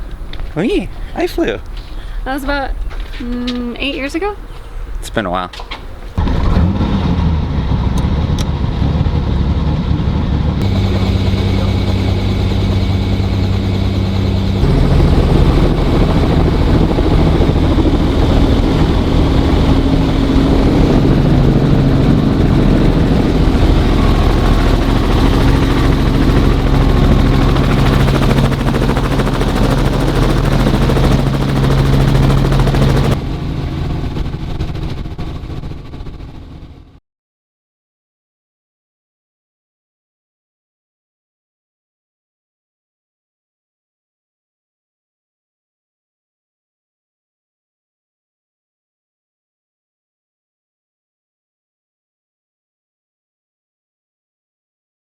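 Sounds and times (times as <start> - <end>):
helicopter engine and rotors drone: 7.4 - 37.0.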